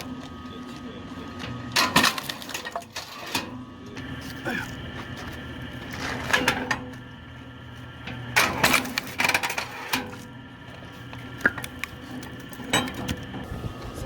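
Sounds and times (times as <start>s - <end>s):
electric motor humming: 10.2s - 14.0s.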